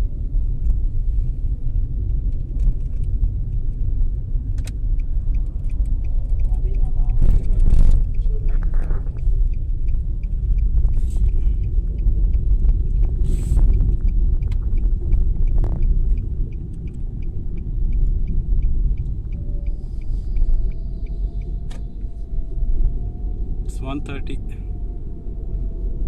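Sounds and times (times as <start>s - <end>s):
wind buffeting microphone: 0.0s - 26.0s
faint regular ticking: 0.3s - 23.1s.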